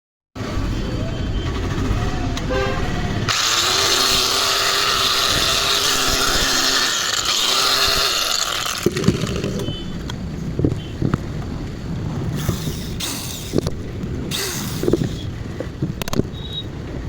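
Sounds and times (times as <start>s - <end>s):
grinder whirring: 1.4s - 10.1s, 12.3s - 15.4s.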